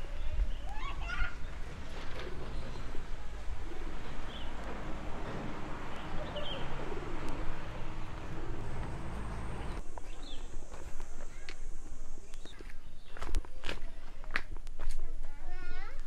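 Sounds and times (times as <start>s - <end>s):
dove-like cooing: 0.9s - 9.8s.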